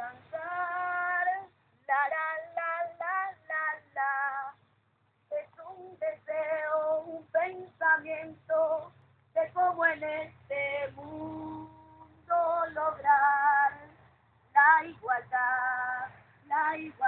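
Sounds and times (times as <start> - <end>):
woman and children singing: 0.0 - 4.6, 5.3 - 17.0.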